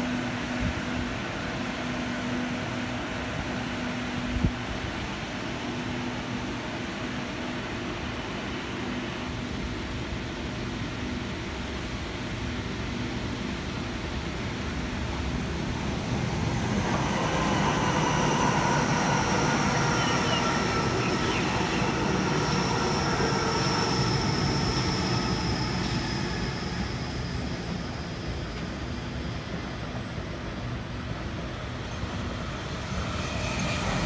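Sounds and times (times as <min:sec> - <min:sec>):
electric train rumbling past: 0:00.0 - 0:34.0
high whines: 0:15.2 - 0:29.4.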